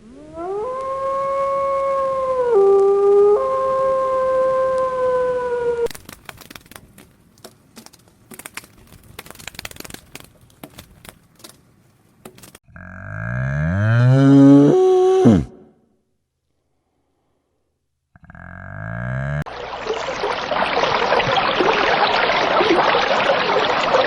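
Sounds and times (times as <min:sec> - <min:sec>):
dog howling: 0:00.0 - 0:05.9.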